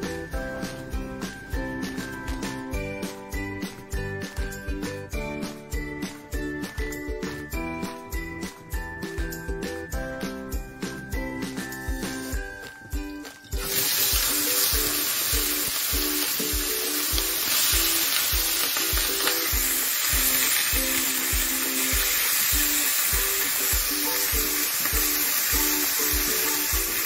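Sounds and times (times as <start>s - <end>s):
music with steady beat: 0.0s - 27.0s
food frying in hot oil: 13.5s - 27.0s.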